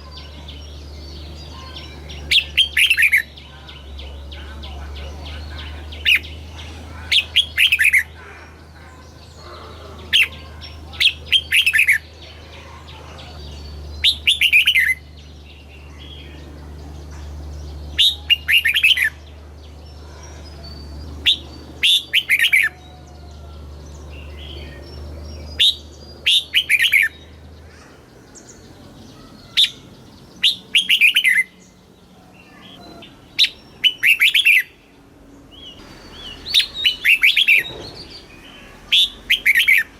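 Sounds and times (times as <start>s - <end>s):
low steady hum: 0.0s - 39.9s
bird singing whistled notes: 24.0s - 27.4s, 28.4s - 31.8s, 32.5s - 34.8s, 35.5s - 39.9s.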